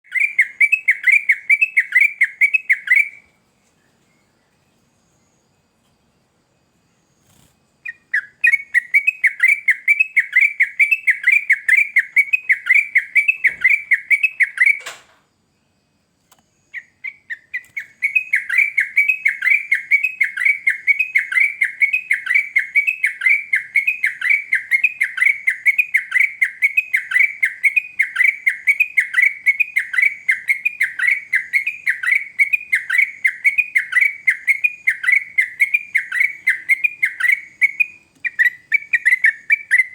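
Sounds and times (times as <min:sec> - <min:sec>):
bulbul chirping: 0:07.8 - 0:14.9, 0:16.6 - 0:39.9.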